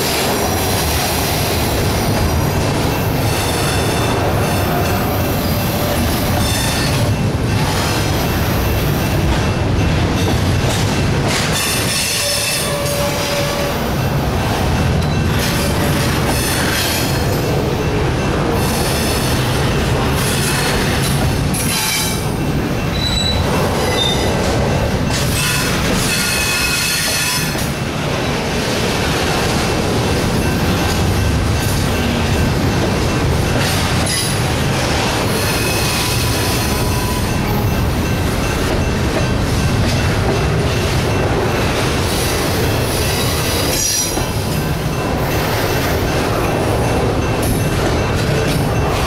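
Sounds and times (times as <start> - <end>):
train wheels rumbling on rail: 0.0 - 49.0
high-pitched wheel squeals: 22.9 - 24.3.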